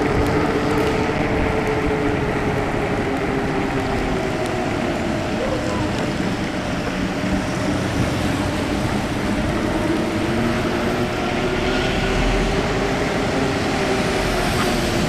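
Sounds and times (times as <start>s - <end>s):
tyres hissing on wet road: 0.0s - 15.0s.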